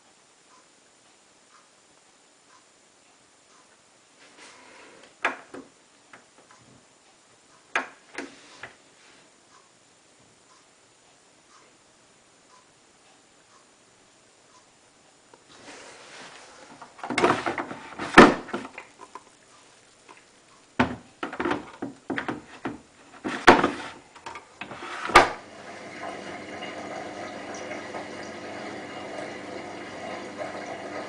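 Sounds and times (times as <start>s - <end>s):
washing machine knocks and thumps: 17.0s - 18.8s, 20.8s - 24.0s, 25.0s - 28.2s
water filling machine: 17.0s - 19.2s, 24.6s - 31.0s.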